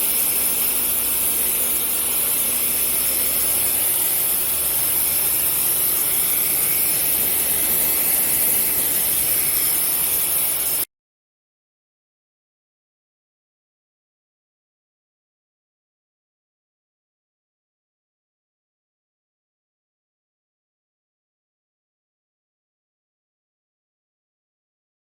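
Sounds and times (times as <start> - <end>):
pressure washer motor hum: 0.0 - 10.9
pressure washer water jet hiss: 0.0 - 10.9.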